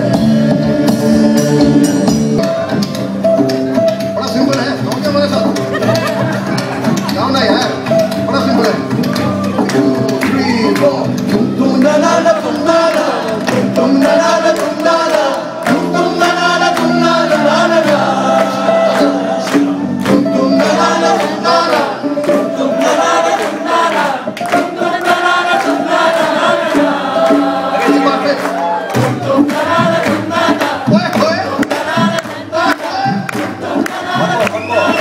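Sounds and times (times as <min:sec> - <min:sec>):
bass line: 0:00.0 - 0:23.8
drum beat: 0:00.0 - 0:35.0
person singing: 0:07.5 - 0:35.0.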